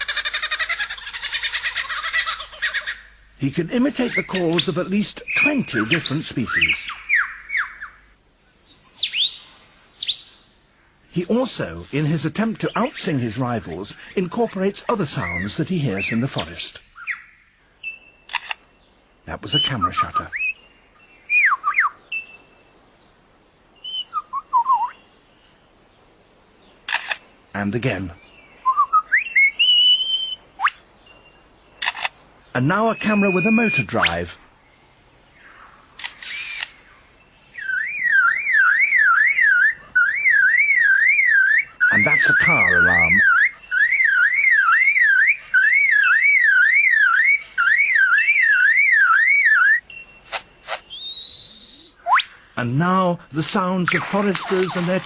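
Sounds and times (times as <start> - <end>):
lyrebird whistled song: 3.9 - 10.4, 15.2 - 22.9, 23.8 - 25.1, 28.2 - 34.4, 36.2 - 52.6
bird mimicking car alarm: 37.6 - 52.4.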